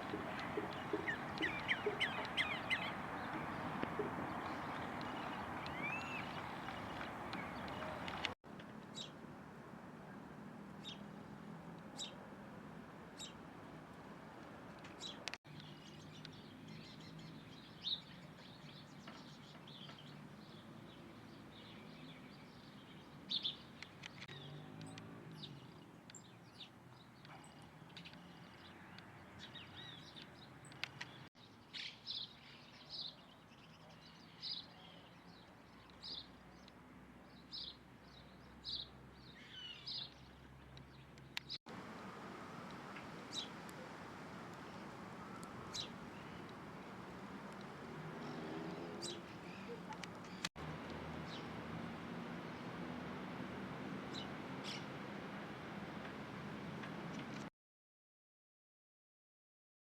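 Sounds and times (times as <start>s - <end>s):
small birds chirping: 0.0s - 8.4s, 15.0s - 57.5s.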